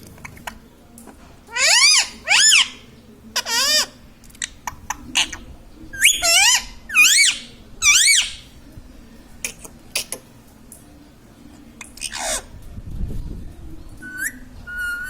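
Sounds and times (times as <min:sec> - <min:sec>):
parakeet shrill calls: 0:01.5 - 0:02.7, 0:06.0 - 0:08.4.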